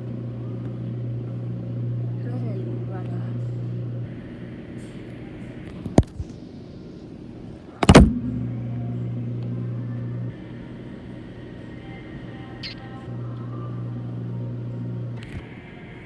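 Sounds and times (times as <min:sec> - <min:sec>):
washing machine motor humming: 0:00.0 - 0:04.1, 0:07.8 - 0:10.4, 0:13.1 - 0:15.4
sharp knock: 0:07.8 - 0:08.8
loud bang: 0:07.8 - 0:09.2.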